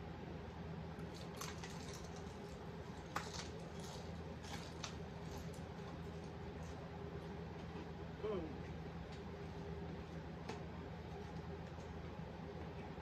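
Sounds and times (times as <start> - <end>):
steady low hum: 0.0 - 13.0
chewing crispy fried chicken: 0.9 - 7.9.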